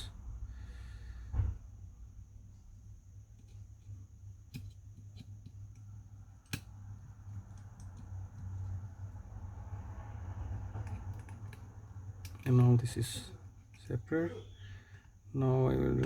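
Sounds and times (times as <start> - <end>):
low steady hum: 0.0 - 16.0
small repair tools clicking: 10.8 - 14.0.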